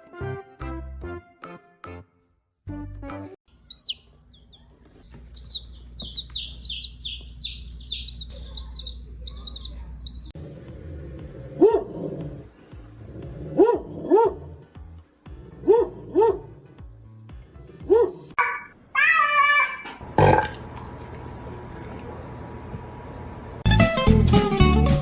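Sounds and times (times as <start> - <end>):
bird chirping: 3.5 - 10.4
dog barking: 11.6 - 12.4, 13.4 - 14.6, 15.5 - 16.6, 17.8 - 18.4.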